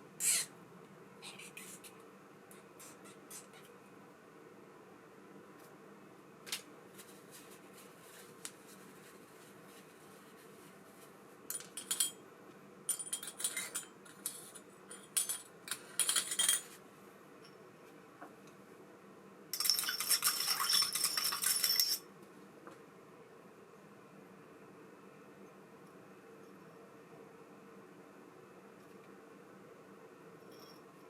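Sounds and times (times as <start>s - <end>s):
fishing reel parts clinking: 19.6s - 22.0s.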